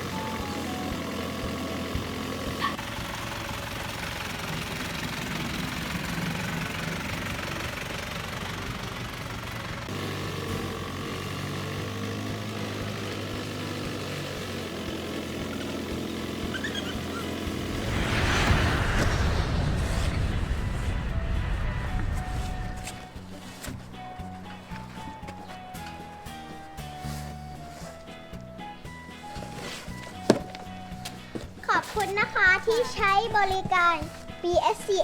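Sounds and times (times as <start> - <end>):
loud whoosh: 17.4 - 23.7
airplane engine drone: 17.4 - 24.0.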